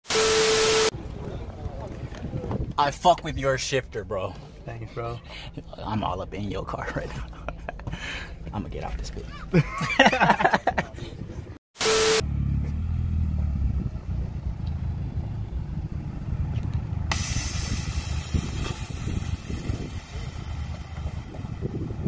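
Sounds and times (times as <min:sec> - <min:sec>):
car engine running low: 0:11.8 - 0:22.0
steady hiss: 0:17.1 - 0:21.5.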